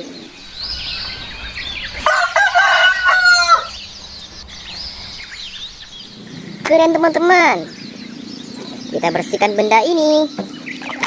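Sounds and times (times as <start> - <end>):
small birds chirping: 0.0 - 11.0
rooster crowing: 0.4 - 6.0.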